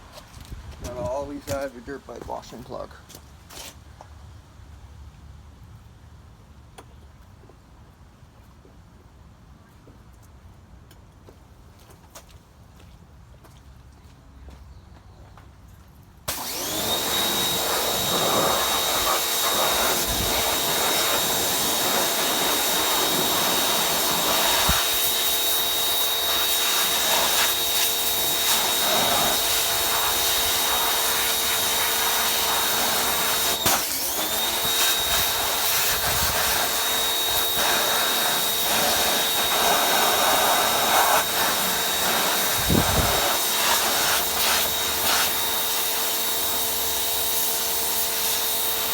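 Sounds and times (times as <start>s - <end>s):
pressure washer motor whine: 16.3s - 48.9s
water spray hissing: 17.0s - 46.6s.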